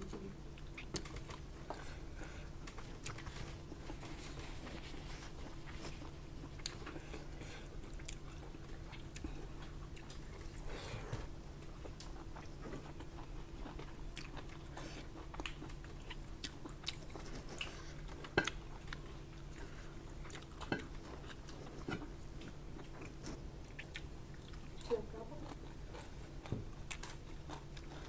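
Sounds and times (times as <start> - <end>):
low steady hum: 0.0 - 28.0
chewing and wet mouth smacks: 11.6 - 24.9.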